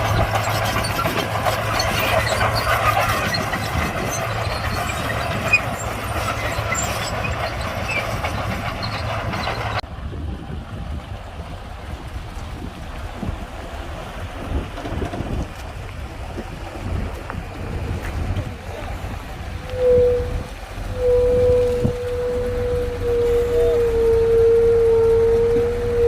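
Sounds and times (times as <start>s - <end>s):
clattering tracks: 0.0s - 9.8s, 11.8s - 18.5s
bulldozer diesel engine: 0.0s - 26.0s.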